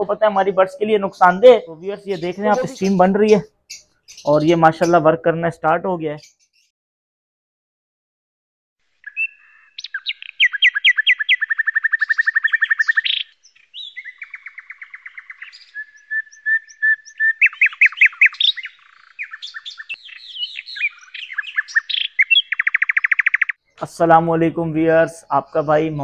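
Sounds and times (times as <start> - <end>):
songbird trilling and chirping: 0.0 - 5.2, 6.0 - 6.7, 9.0 - 23.6.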